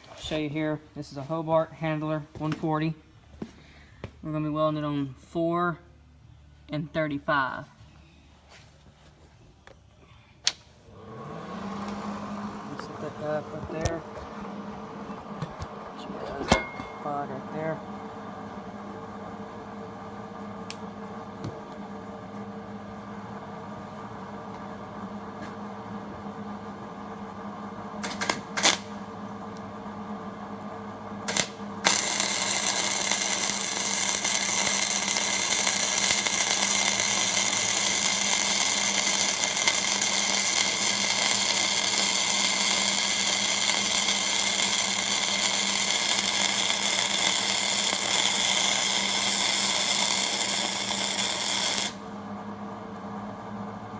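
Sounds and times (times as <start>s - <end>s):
welder humming: 9.6s - 53.9s
welding arc crackling: 28.0s - 29.0s, 31.2s - 52.1s.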